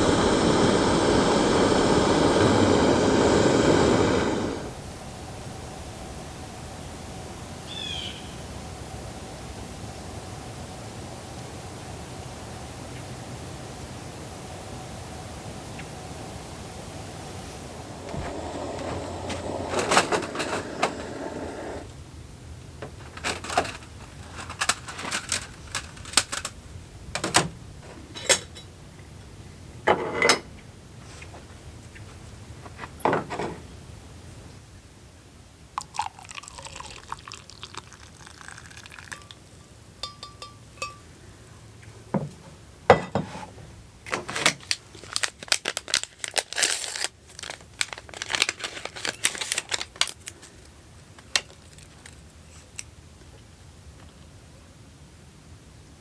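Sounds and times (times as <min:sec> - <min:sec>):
faint steady tone: 0:39.1 - 0:41.8
small hard objects clattering: 0:44.1 - 0:52.8.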